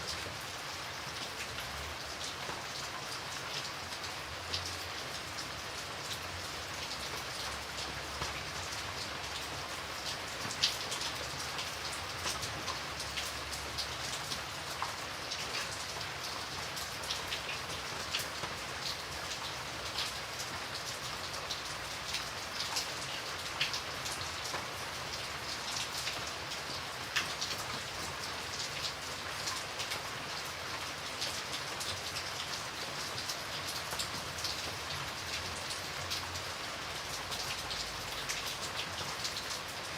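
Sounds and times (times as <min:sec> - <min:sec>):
raindrops pattering on surface: 0:00.0 - 0:39.9.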